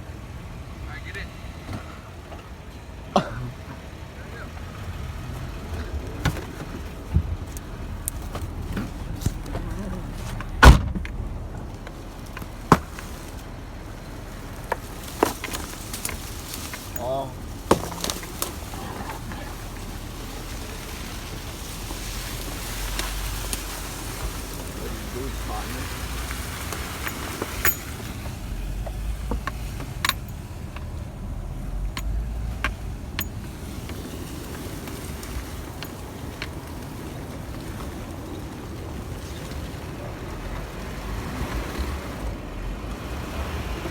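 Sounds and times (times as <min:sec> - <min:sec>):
low steady rumble: 0:00.0 - 0:43.9
sharp knocks and rattles: 0:05.2 - 0:22.3, 0:22.9 - 0:38.2
loud thump: 0:10.6 - 0:11.3.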